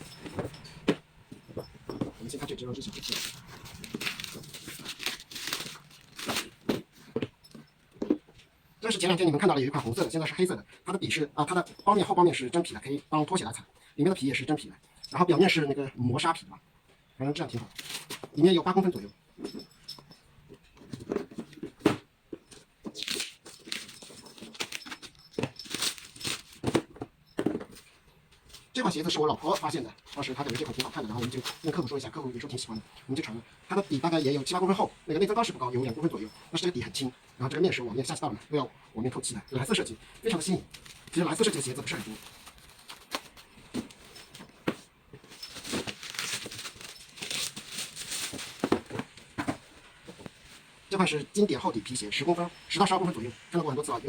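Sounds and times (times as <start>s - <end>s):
packaging crinkling and rustling: 1.4s - 7.4s, 17.5s - 18.5s, 20.7s - 32.8s, 39.6s - 51.0s
shoes set down knocks: 48.6s - 50.4s.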